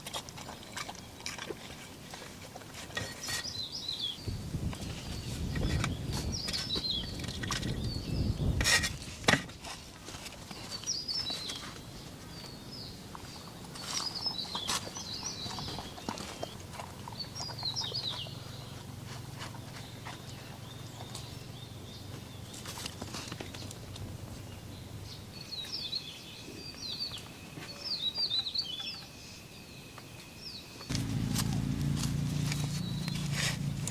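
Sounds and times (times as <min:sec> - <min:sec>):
small birds chirping: 0:03.2 - 0:08.6, 0:10.5 - 0:33.9
low outdoor rumble: 0:30.9 - 0:33.9.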